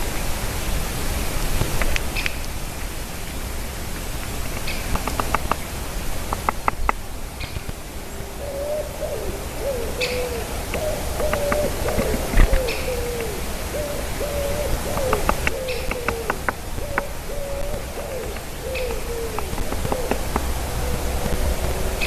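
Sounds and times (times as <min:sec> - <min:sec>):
steady outdoor hiss: 0:00.0 - 0:22.0
owl hooting: 0:07.9 - 0:22.0.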